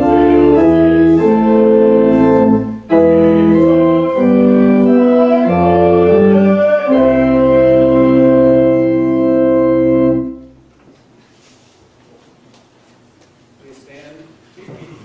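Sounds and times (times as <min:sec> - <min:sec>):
organ playing sustained chords: 0:00.0 - 0:10.6
room noise: 0:00.0 - 0:15.0.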